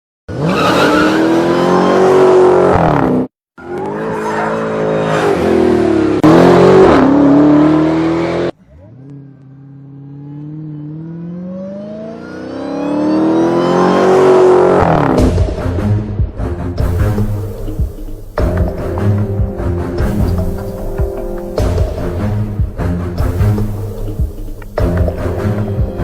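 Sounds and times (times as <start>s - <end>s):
car engine revving: 0.3s - 16.2s, 16.8s - 26.0s
high whine: 17.0s - 26.0s.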